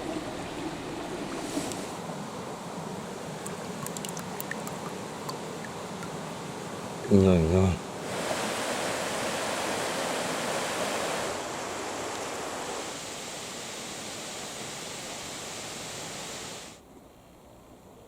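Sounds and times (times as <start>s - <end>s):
waterfall pouring: 0.0s - 2.0s, 3.4s - 5.4s, 8.0s - 16.7s.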